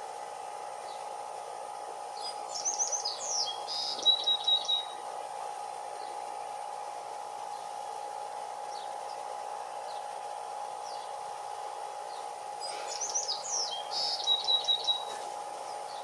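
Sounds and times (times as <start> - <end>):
steady background hum: 0.0 - 16.0
woodpecker chirping call: 2.2 - 5.0, 12.7 - 15.2.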